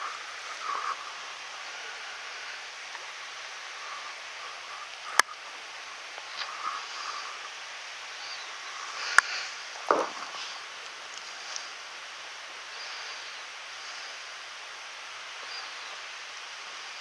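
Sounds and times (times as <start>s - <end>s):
mountain stream rushing: 0.0s - 17.0s
short dull thump: 9.9s - 10.3s.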